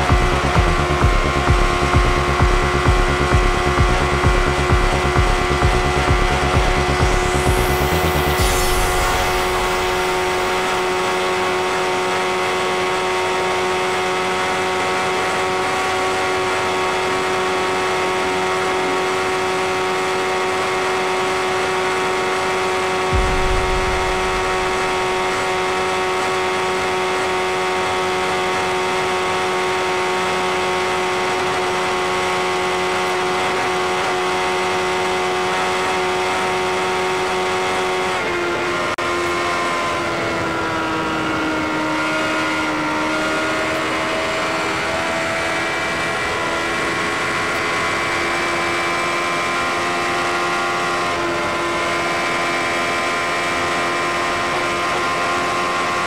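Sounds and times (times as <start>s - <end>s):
motorcycle engine at high rpm: 0.0s - 56.0s
wind rush: 6.7s - 11.8s, 23.1s - 26.7s
low thump: 23.1s - 26.4s.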